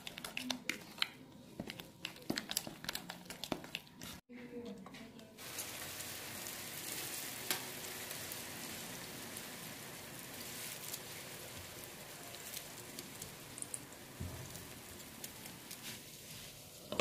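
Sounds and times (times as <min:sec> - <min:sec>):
batter sizzling in hot oil: 0:05.4 - 0:17.0.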